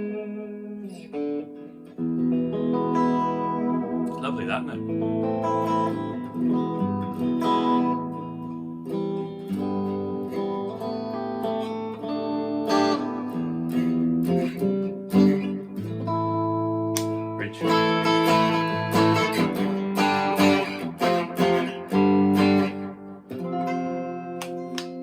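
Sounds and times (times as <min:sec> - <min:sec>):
clean electric guitar chords: 0:00.0 - 0:25.0.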